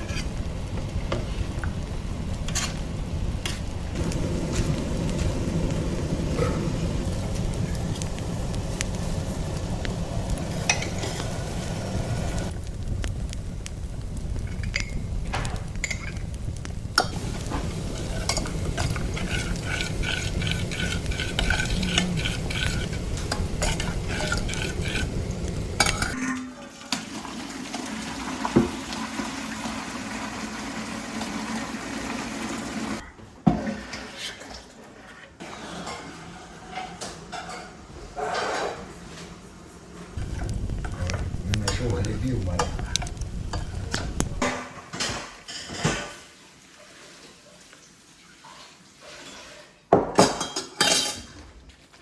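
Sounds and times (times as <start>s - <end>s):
food sizzling in a pan: 0.0s - 26.2s, 26.9s - 33.0s, 39.8s - 51.4s
utensils and pots clinking: 10.4s - 12.5s, 14.4s - 16.4s, 17.0s - 27.4s, 35.4s - 39.3s, 40.2s - 46.3s, 50.0s - 51.5s
stirring strokes: 16.9s - 26.2s.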